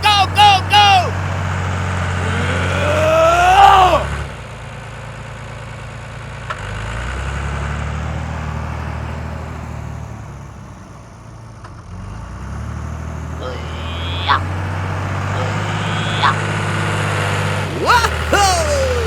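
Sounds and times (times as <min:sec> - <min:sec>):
miniature tractor engine idling: 0:17.8 - 0:19.0.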